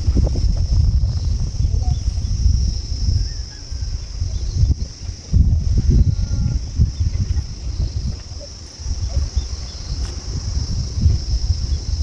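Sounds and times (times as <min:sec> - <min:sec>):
low rumble and thumping: 0:00.0 - 0:03.1
high-pitched insect drone: 0:00.0 - 0:12.0.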